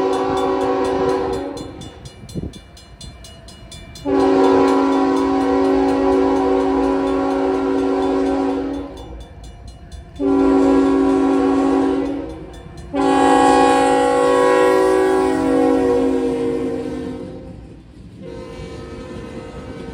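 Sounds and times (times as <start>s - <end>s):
locomotive air horn blasts: 0.0s - 1.8s, 4.0s - 9.1s, 10.2s - 17.6s, 18.2s - 19.9s.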